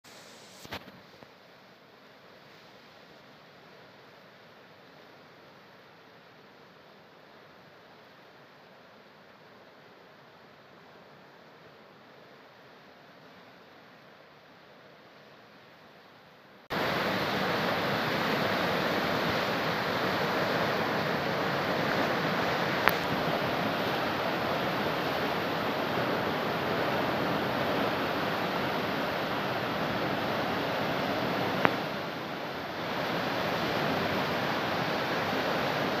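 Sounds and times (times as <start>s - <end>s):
river water rushing: 16.7s - 36.0s.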